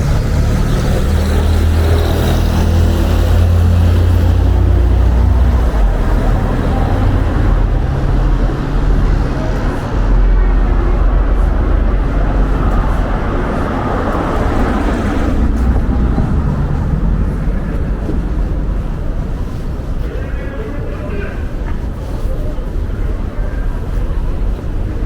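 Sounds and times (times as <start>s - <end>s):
city street noise: 0.0s - 25.0s
wind buffeting microphone: 2.3s - 20.5s.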